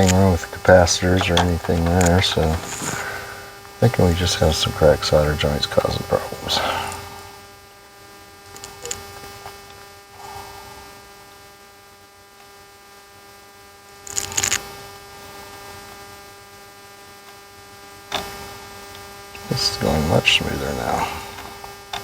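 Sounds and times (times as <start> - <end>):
electrical hum: 0.0 - 13.3, 16.8 - 22.0.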